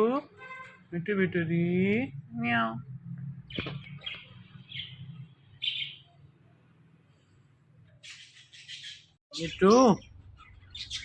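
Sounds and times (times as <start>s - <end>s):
parrot chirping and calling: 4.0s - 6.2s, 8.0s - 11.0s.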